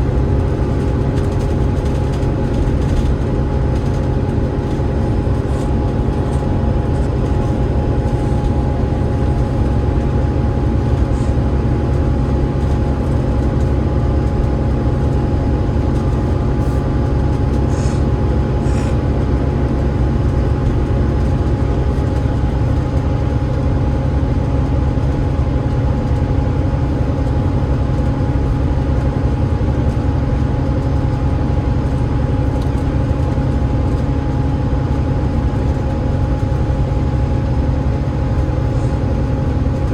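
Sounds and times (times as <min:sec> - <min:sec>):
steady high whine: 0:00.0 - 0:22.4
bus diesel engine rumbling: 0:00.0 - 0:39.9.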